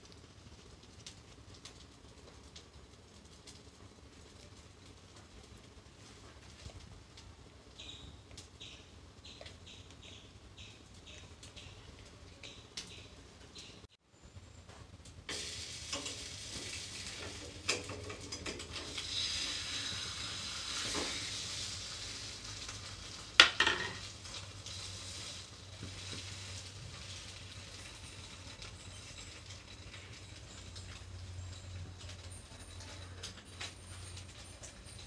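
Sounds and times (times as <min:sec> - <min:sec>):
bread frying in oil: 0:00.0 - 0:13.9, 0:14.6 - 0:35.0
spatula scraping and tapping pan: 0:23.4 - 0:24.1.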